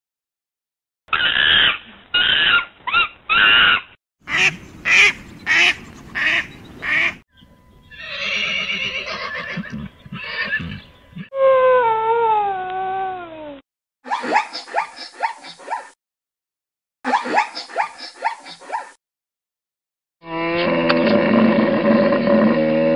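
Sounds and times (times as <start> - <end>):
horse whinnying: 7.9 - 10.8.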